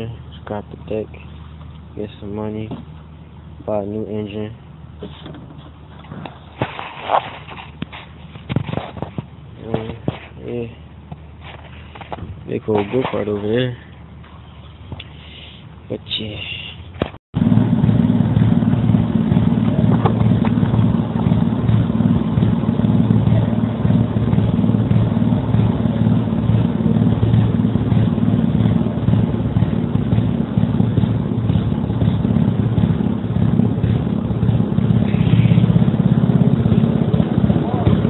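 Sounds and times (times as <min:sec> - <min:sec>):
small engine running: 0:17.4 - 0:38.0.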